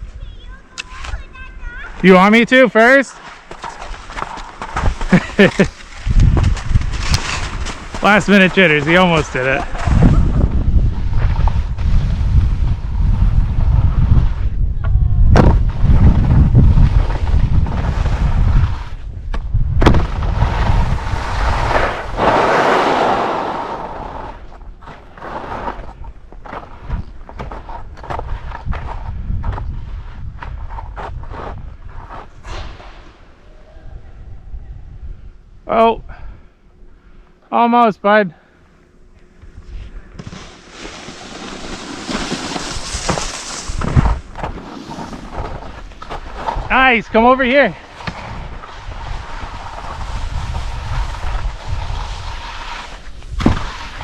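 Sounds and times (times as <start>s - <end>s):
skis sliding over snow: 1.9s - 14.5s, 20.2s - 29.0s, 39.8s - 54.0s
wind buffeting microphone: 5.9s - 22.2s, 27.9s - 36.4s, 48.1s - 54.0s
heavy low thump: 14.8s - 16.5s.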